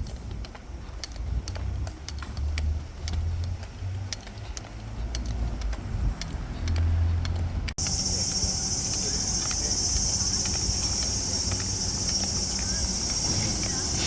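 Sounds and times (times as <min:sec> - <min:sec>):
moving vehicle rumble: 0:00.0 - 0:14.0
high-pitched insect chorus: 0:07.8 - 0:14.0.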